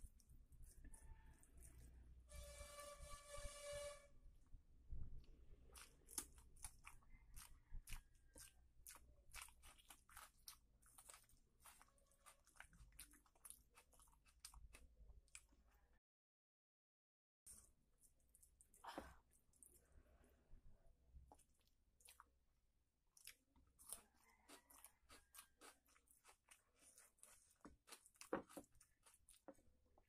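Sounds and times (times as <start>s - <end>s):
steady pitched tone: 2.3s - 4.2s
person chewing with wet mouth clicks: 5.6s - 15.5s, 21.3s - 22.4s, 23.1s - 29.5s.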